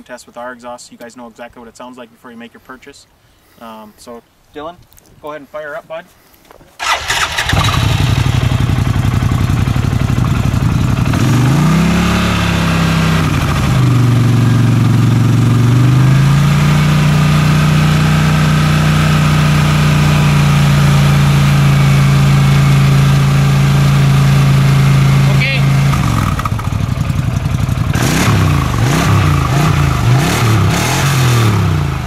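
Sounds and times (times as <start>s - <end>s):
engine starting and revving: 6.8s - 27.1s, 27.7s - 32.0s.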